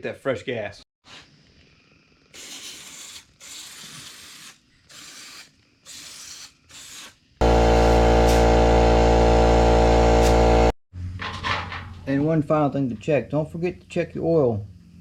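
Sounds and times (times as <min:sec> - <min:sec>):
aerosol spray hissing: 0:02.4 - 0:07.1
air compressor buzzing: 0:07.4 - 0:10.8.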